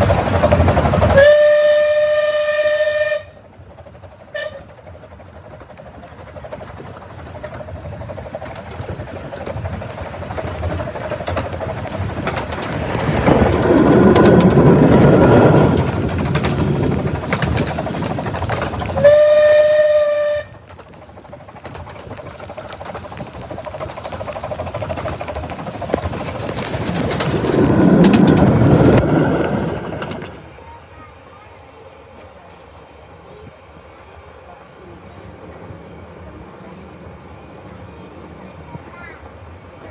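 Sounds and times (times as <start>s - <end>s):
miniature train running on track: 0.0s - 39.9s
locomotive whistle: 1.0s - 3.5s, 4.3s - 4.8s, 18.8s - 20.7s.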